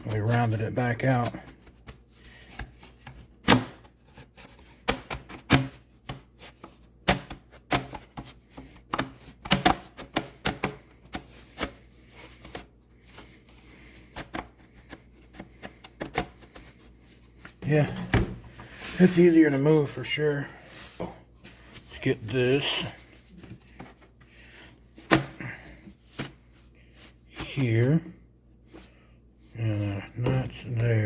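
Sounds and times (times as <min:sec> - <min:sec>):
plastic tube knocking and clicking: 0:07.0 - 0:11.7.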